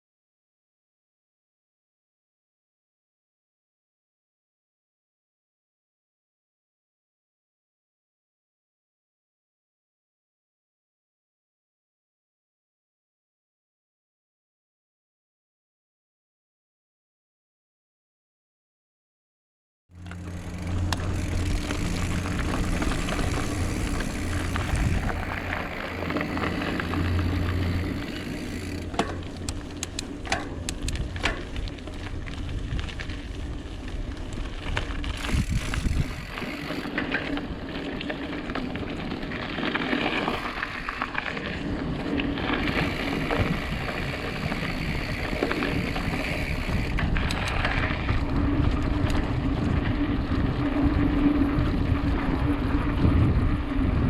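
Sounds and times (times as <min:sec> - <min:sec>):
low hum: 0:19.9 - 0:39.1
bike tyres rumbling on rough ground: 0:19.9 - 0:54.0
bike rattling and knocking: 0:20.0 - 0:53.2
wind noise: 0:20.2 - 0:37.6, 0:40.1 - 0:54.0.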